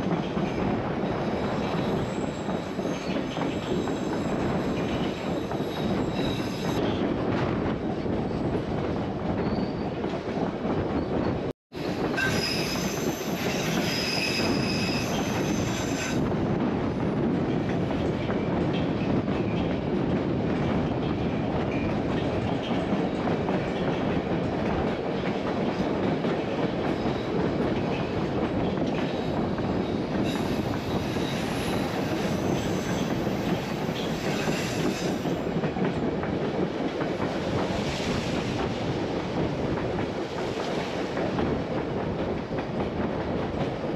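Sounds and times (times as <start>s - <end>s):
train wheels rumbling on rail: 0.0s - 43.9s
high wheel squeal: 5.2s - 6.8s, 12.2s - 16.2s.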